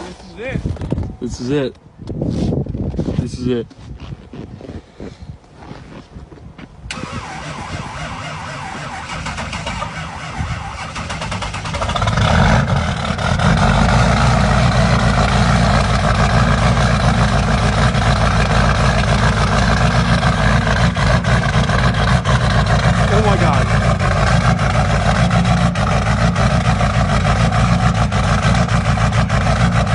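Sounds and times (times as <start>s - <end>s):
starter motor cranking: 6.9s - 12.8s
diesel engine rough idle: 6.9s - 29.9s.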